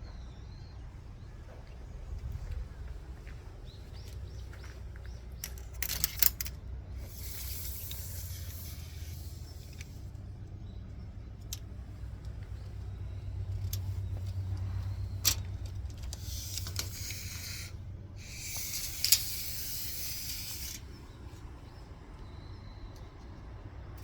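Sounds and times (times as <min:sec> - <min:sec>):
high hiss: 0:16.2 - 0:21.0.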